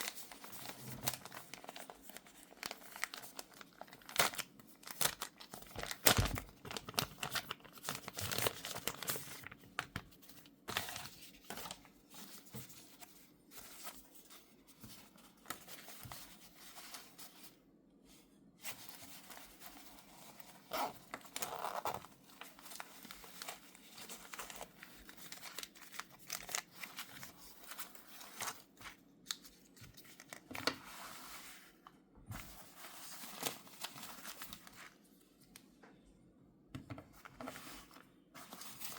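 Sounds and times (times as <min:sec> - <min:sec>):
packaging crinkling and tearing: 0:00.0 - 0:10.1, 0:20.6 - 0:30.8.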